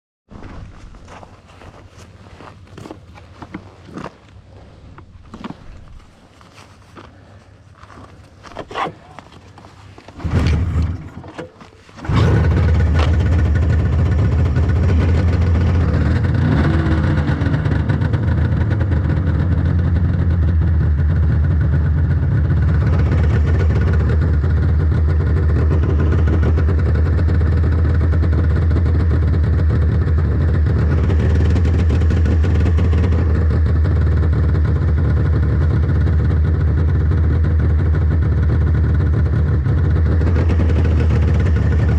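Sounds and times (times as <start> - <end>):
snowmobile engine starting and running: 2.0 - 41.9.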